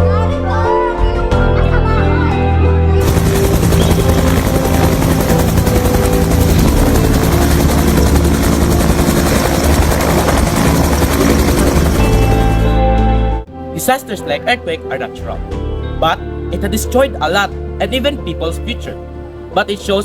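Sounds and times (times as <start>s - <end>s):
quiet background music: 0.0s - 20.0s
loud steady noise: 3.0s - 12.7s.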